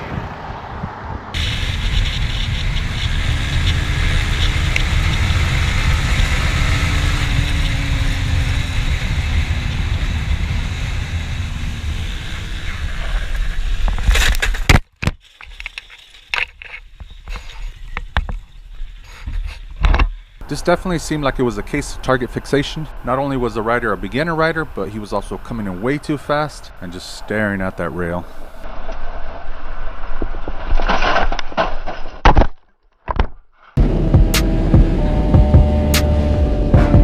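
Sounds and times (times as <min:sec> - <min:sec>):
motorcycle engine: 0:00.0 - 0:13.1, 0:33.8 - 0:37.0
wind noise on microphone: 0:00.0 - 0:14.7.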